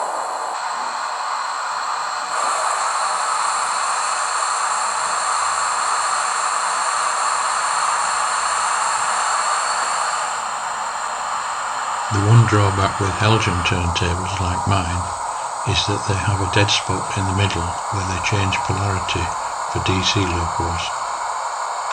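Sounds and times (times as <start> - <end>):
model locomotive steam hiss: 0.0 - 12.1.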